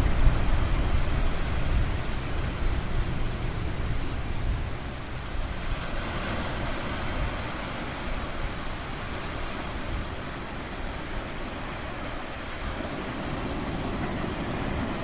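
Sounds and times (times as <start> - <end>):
ocean surf rushing: 0.0 - 15.0.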